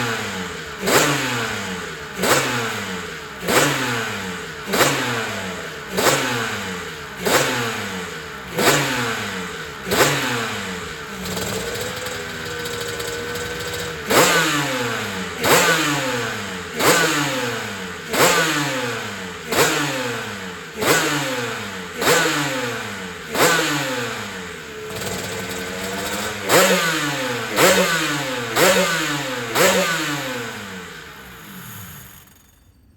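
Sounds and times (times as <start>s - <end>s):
racing engine revving: 0.0s - 32.5s.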